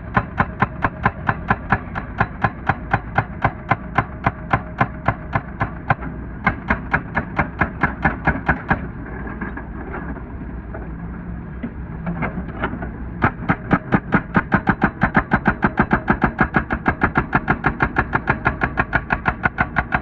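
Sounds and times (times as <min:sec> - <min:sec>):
hydraulic breaker hammering asphalt: 0:00.0 - 0:09.0, 0:13.2 - 0:20.0
excavator engine running: 0:00.0 - 0:20.0.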